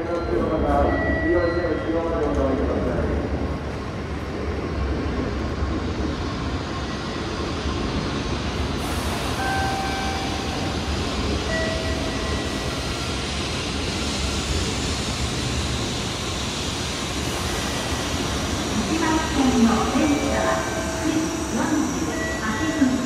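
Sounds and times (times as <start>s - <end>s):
train whine tones: 8.6s - 23.0s.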